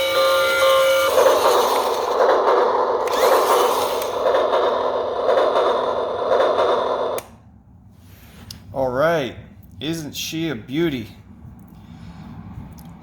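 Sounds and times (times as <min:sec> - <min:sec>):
toy train rattling on track: 0:00.0 - 0:07.2.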